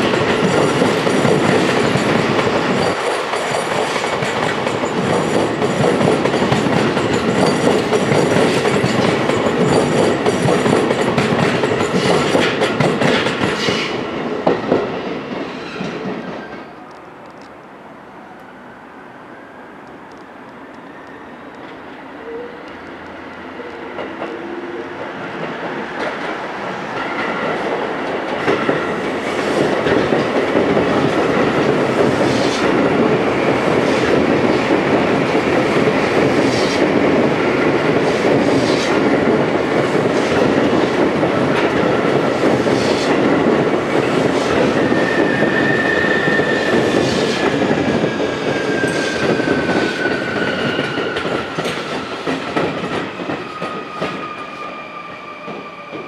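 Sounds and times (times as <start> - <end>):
train passing rumble: 0.0 - 56.0
wheel squeal: 44.8 - 47.1.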